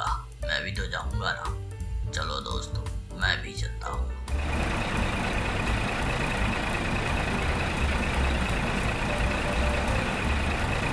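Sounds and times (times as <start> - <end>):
heavy truck engine rumbling: 4.2 - 10.9.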